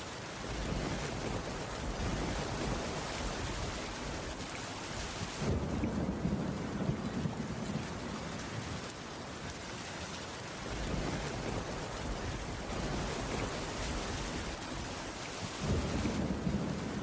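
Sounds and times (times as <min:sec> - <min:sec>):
steady rainfall: 0:00.0 - 0:17.0
rolling thunder: 0:05.3 - 0:08.2, 0:15.6 - 0:17.0.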